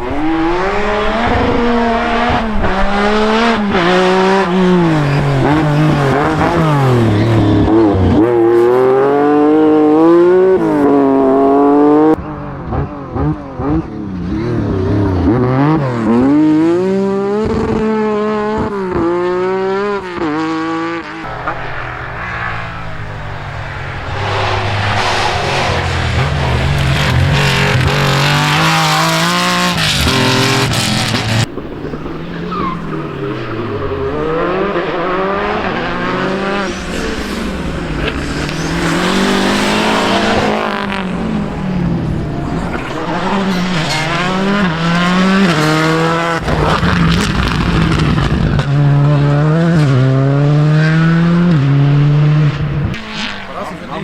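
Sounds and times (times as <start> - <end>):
rally car engine revving: 0.0 - 54.0
rush of noise: 21.2 - 48.8.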